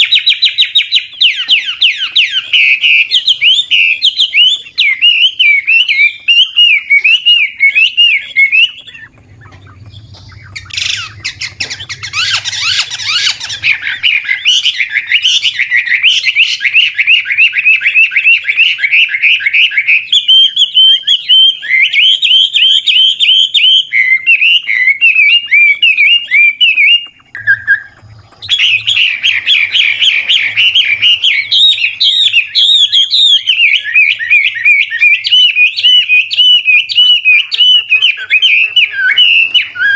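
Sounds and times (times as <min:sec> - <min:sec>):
bird singing whistled trills: 0:00.0 - 0:39.9.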